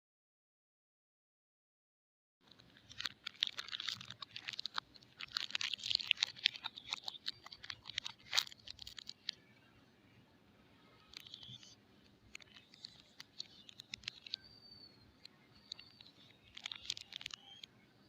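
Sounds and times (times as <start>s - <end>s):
packaging crinkling: 2.5s - 9.5s, 11.0s - 14.5s, 15.2s - 17.7s.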